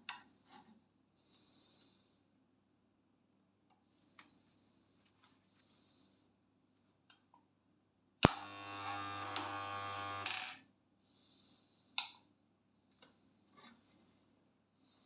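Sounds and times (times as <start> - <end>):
spot welder snap: 8.2 - 10.3
loud mains buzz: 8.2 - 10.6.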